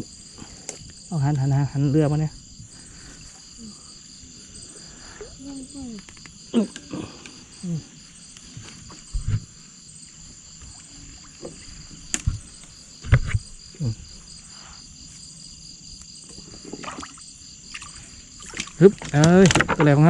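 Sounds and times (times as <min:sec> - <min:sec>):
night insects chorus: 0:00.0 - 0:20.0
paddle splashing water: 0:08.5 - 0:13.6, 0:16.3 - 0:20.0
low water sloshes: 0:08.8 - 0:14.4, 0:16.5 - 0:19.2.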